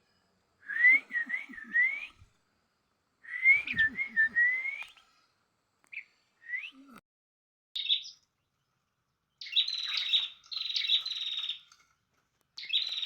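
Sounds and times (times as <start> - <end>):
songbird singing: 0.0 - 7.0, 7.8 - 11.8, 12.6 - 13.0.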